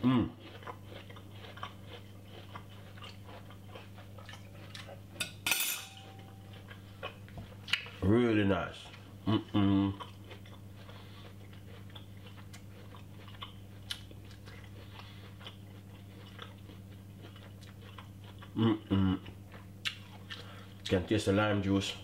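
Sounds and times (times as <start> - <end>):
person chewing crunchy food: 0.0 - 5.2, 6.0 - 8.0, 8.9 - 21.0
steady low hum: 0.0 - 22.0.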